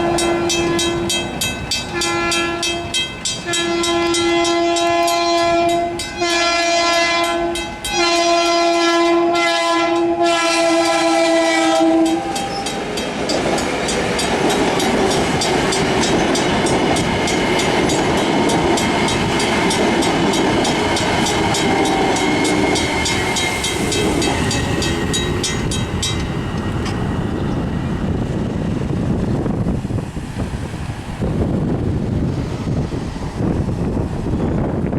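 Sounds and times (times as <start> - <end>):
train air horn blowing: 0.0 - 12.8, 21.0 - 25.6
train wheel and rail noise: 0.0 - 34.9.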